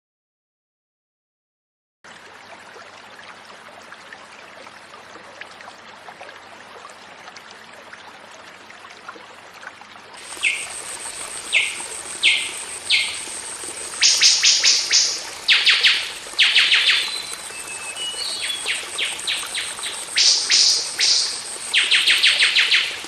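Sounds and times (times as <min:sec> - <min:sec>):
downward-sweeping bird calls: 0:10.3 - 0:23.0.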